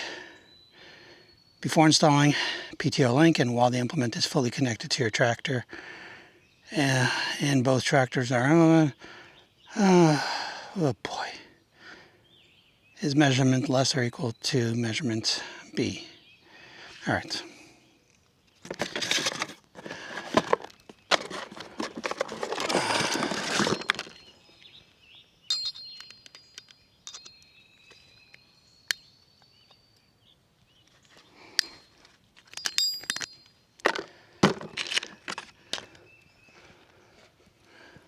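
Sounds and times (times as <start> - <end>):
rustling and scraping handling noise: 18.1 - 24.7, 30.8 - 36.0
metal parts clinking: 20.4 - 24.3, 25.5 - 29.9, 31.5 - 34.0.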